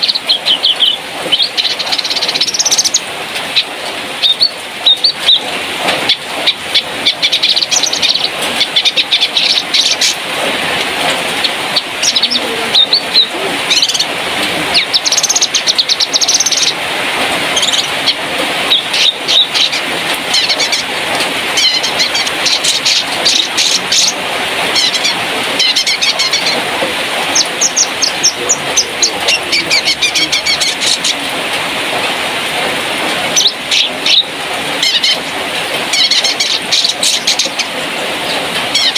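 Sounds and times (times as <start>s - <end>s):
bird chirping in quick runs: 0.0s - 3.0s
steady rushing background noise: 0.0s - 38.9s.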